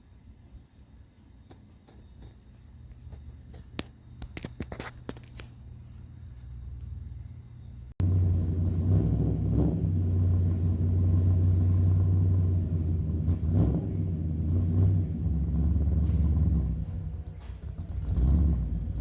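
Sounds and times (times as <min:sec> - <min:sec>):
car engine deep rumble: 0:05.1 - 0:19.0.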